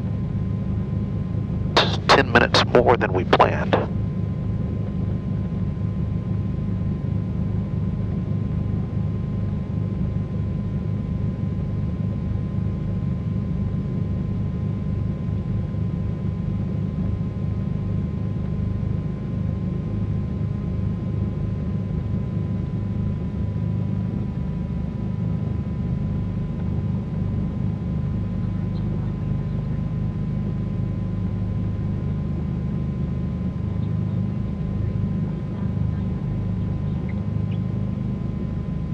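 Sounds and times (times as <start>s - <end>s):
aircraft piston engines droning: 1.8s - 3.9s, 28.0s - 38.9s.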